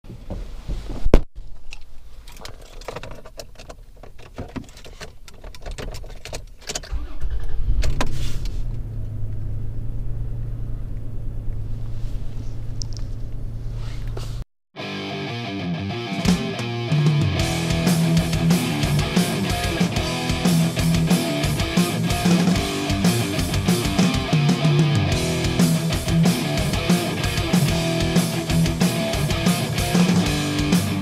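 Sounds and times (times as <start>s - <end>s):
car engine starting and idling: 6.5s - 14.4s.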